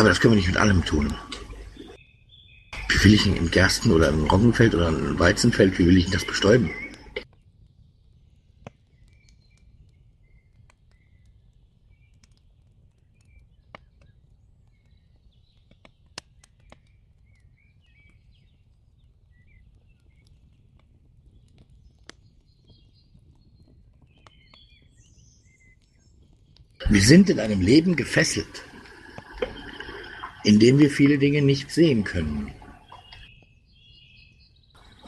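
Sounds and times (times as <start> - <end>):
small birds chirping: 0.0 - 35.0
low steady hum: 26.8 - 33.3.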